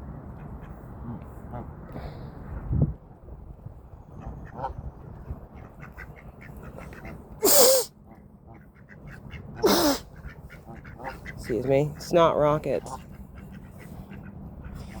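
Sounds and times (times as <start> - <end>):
ducks quacking: 4.2 - 7.2, 8.1 - 15.0.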